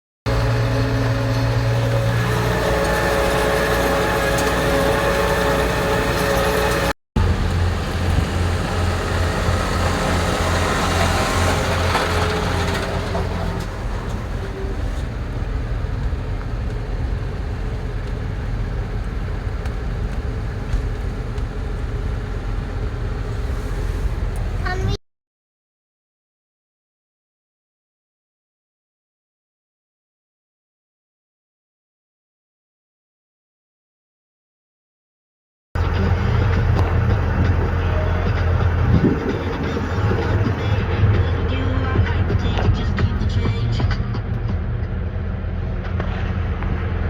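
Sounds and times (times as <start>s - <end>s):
engine running: 0.3s - 25.0s, 35.8s - 47.0s.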